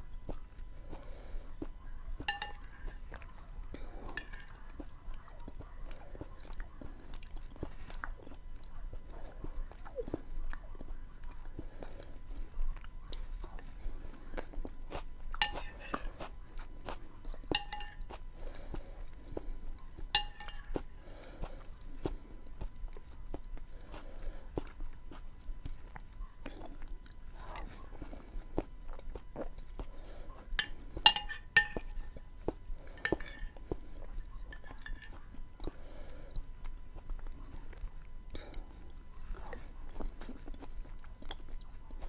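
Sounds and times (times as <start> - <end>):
person chewing beans: 0.0 - 42.0
cutlery clinking against dish: 2.2 - 3.0, 15.4 - 16.2, 17.5 - 18.2, 20.1 - 20.8, 30.6 - 32.2, 33.0 - 33.6, 34.5 - 35.2.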